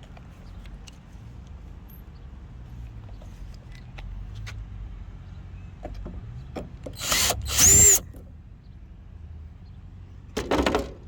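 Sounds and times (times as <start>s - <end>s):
cordless drill whining: 7.0s - 8.0s.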